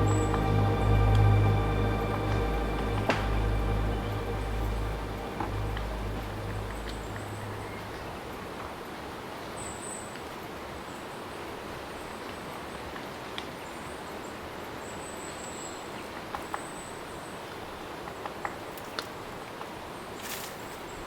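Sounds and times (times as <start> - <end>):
high-pitched drawn-out chirps: 0.0 - 8.0
outdoor ambience: 0.0 - 21.0.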